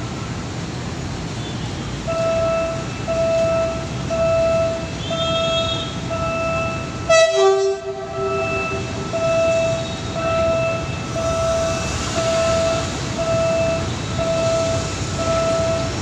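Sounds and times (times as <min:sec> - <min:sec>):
train warning beeps: 0:01.4 - 0:16.0
train horn blast: 0:05.0 - 0:06.0, 0:06.7 - 0:10.3.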